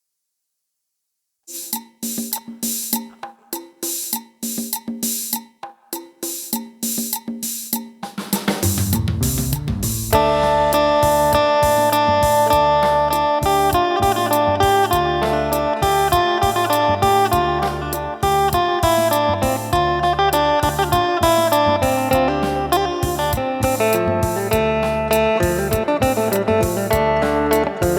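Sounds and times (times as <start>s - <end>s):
low pulsing rhythm: 8.8s - 27.9s
plucked lute melody with drone: 10.0s - 27.9s.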